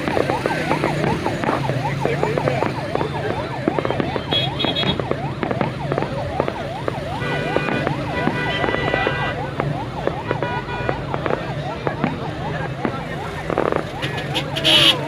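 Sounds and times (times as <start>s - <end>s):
scattered crackles: 0.0s - 15.0s
siren-like whoops: 0.0s - 15.0s.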